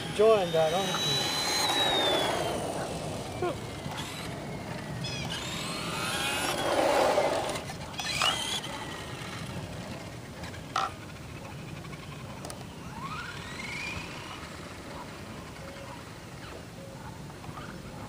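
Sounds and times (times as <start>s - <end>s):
rc truck motor whine: 0.0s - 16.8s.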